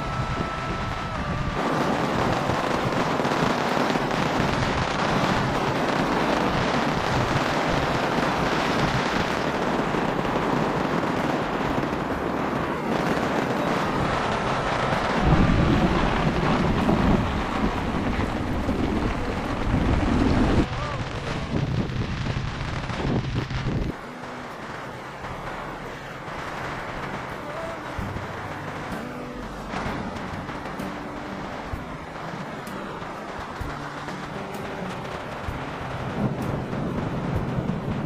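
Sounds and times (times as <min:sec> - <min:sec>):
heavy rain pouring: 0:00.0 - 0:38.0
wind gusts buffeting microphone: 0:00.0 - 0:38.0.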